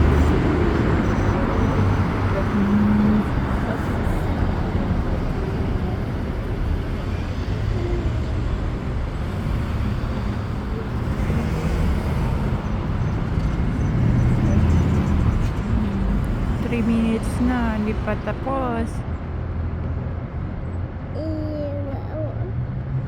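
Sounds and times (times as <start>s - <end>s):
heavy vehicles rumbling: 0.0s - 23.0s.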